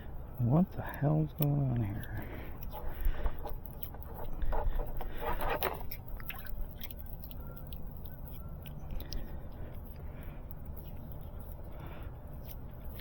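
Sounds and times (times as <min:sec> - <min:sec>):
small clicks and ticks: 0:00.8 - 0:11.8
scraping rustle: 0:01.7 - 0:11.8.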